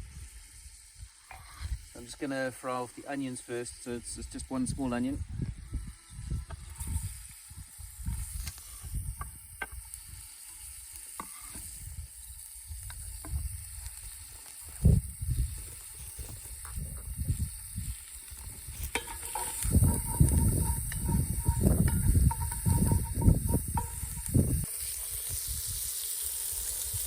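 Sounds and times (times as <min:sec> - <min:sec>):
onion sizzling in a pan: 0:00.0 - 0:27.0.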